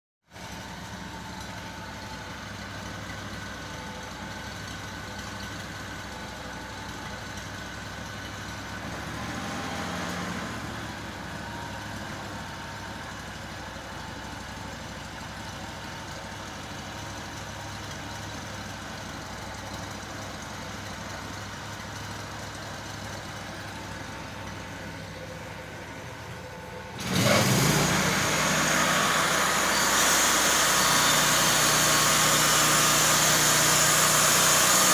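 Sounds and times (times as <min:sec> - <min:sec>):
small gasoline engine idling: 0:00.3 - 0:08.9, 0:10.8 - 0:34.9
engine revving: 0:08.8 - 0:12.3, 0:26.9 - 0:34.9.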